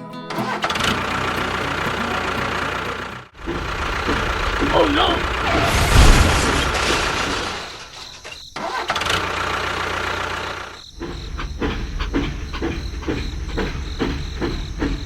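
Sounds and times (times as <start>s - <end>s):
small engine running: 0.3s - 5.8s, 8.6s - 15.0s
engine knocking pulse: 0.4s - 5.5s, 8.6s - 15.0s.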